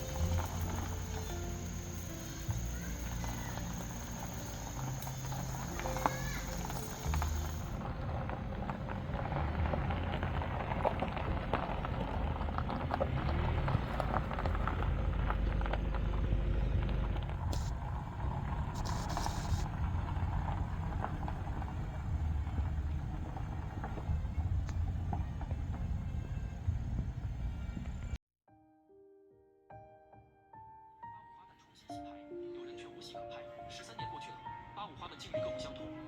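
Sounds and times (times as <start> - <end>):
steady low rumble: 0.0 - 28.2
small crackles and clicks: 16.8 - 25.5.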